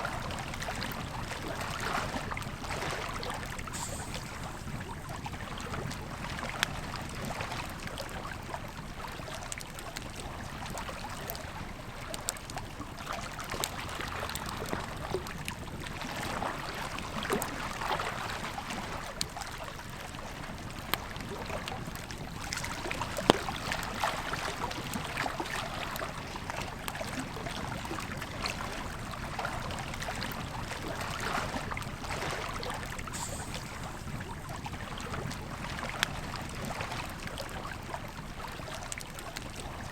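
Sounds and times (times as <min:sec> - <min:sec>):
river flowing: 0:00.0 - 0:06.6, 0:21.2 - 0:39.7.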